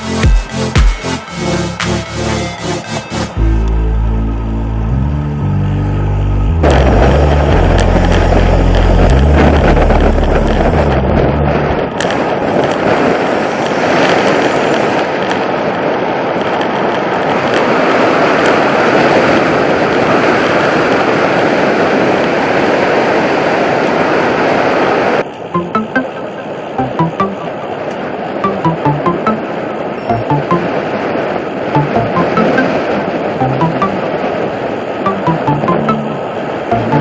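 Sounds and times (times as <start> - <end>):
electronic music bass: 0.0 - 11.9, 25.6 - 27.6, 28.5 - 29.4, 30.0 - 30.7, 31.8 - 34.2, 35.1 - 37.0
wind rushing over microphone: 6.6 - 25.3.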